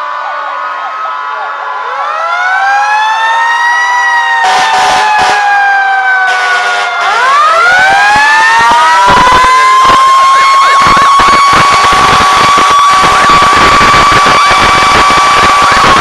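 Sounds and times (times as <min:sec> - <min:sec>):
fire truck sirens wailing: 0:00.0 - 0:16.0
siren winding up: 0:07.0 - 0:16.0
bursts of rushing noise: 0:07.9 - 0:16.0.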